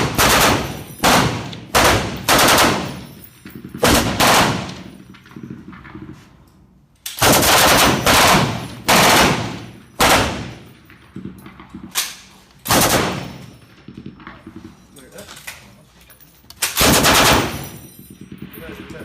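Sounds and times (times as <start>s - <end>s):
machine gun bursts with echo: 0.0s - 6.1s, 7.2s - 11.9s, 12.7s - 14.3s, 16.8s - 19.0s.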